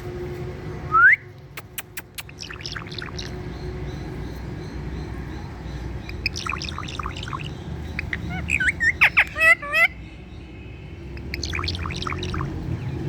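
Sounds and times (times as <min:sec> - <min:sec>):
parakeet chirps and clicks: 0:01.4 - 0:03.5, 0:06.0 - 0:09.9, 0:11.2 - 0:12.6.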